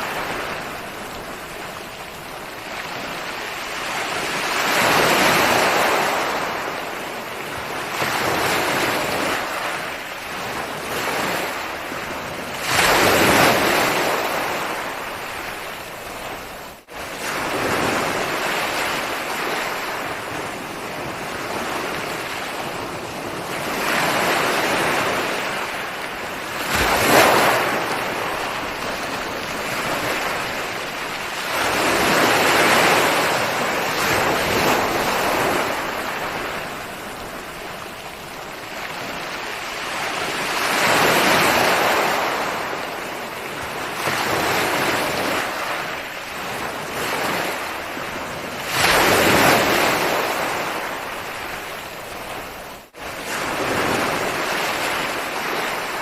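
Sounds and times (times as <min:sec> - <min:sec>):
ocean waves breaking on shore: 0:00.0 - 0:56.0
wave crash: 0:26.6 - 0:37.1.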